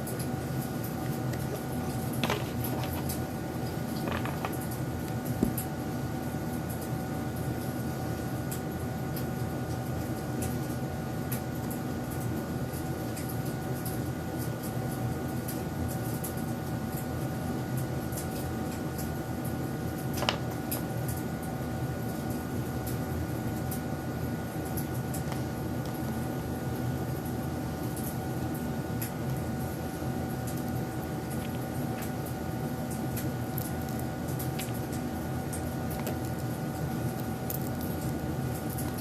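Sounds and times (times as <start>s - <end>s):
steady hum with faint tone: 0.0s - 39.0s.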